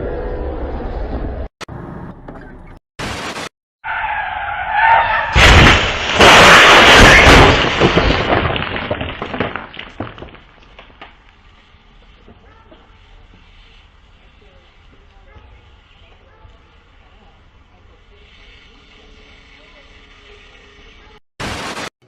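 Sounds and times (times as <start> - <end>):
car tyres screeching: 3.8 - 5.4
loud crash: 4.9 - 10.4.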